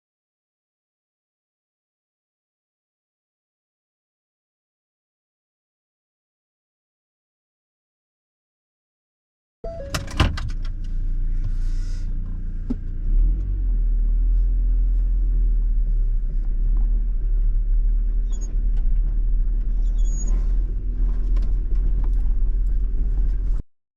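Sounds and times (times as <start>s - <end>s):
vehicle engine rumbling: 9.6s - 23.7s.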